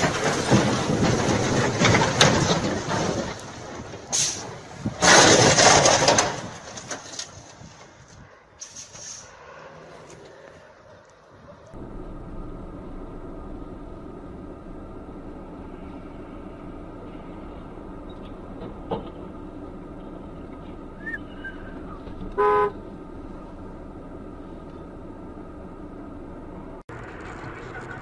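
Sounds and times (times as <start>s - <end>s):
road traffic noise: 0.0s - 28.0s
car horn honk: 22.3s - 22.8s.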